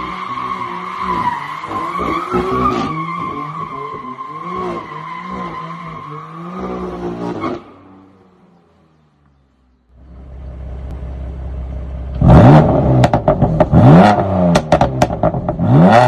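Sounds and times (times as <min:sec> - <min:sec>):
car engine revving: 0:10.0 - 0:16.0.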